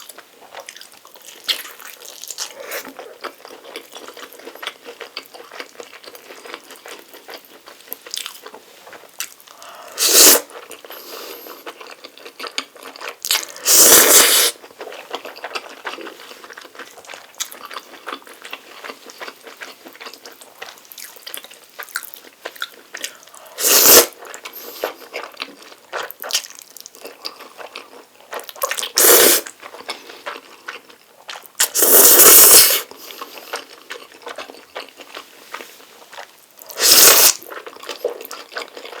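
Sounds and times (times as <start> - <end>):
chewing and wet mouth sounds: 0.0 - 39.0
noodle slurping: 9.8 - 11.6, 13.6 - 14.6, 23.4 - 25.0, 28.9 - 29.5, 31.6 - 33.6, 36.7 - 37.4.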